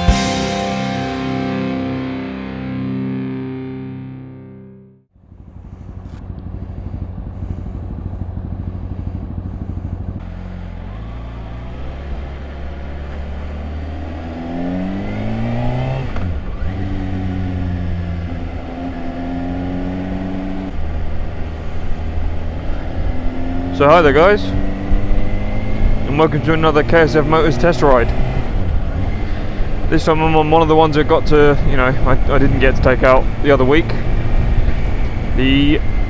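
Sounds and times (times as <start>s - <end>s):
intro music: 0.0s - 5.1s
motorcycle engine accelerating: 0.0s - 36.0s.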